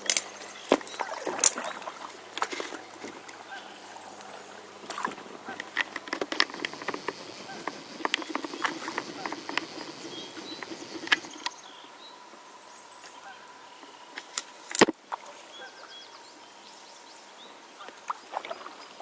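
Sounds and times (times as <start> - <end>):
kayak paddling: 0.0 - 19.0
paddle knocking against kayak: 0.7 - 11.5.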